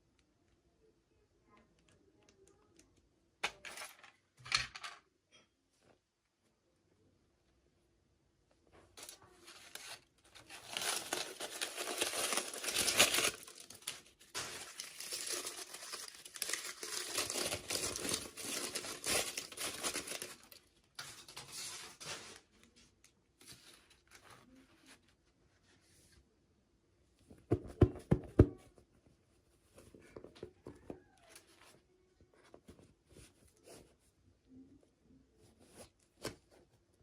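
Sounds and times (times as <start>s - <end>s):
packaging crinkling and tearing: 9.0s - 21.6s.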